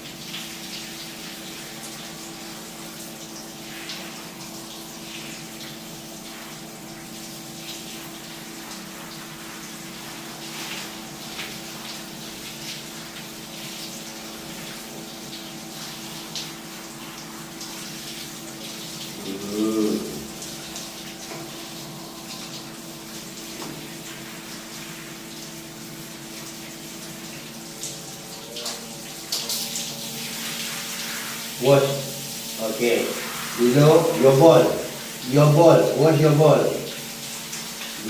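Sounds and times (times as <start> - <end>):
water running from a tap: 0.0 - 38.0
short loud vocal sound: 19.2 - 20.3.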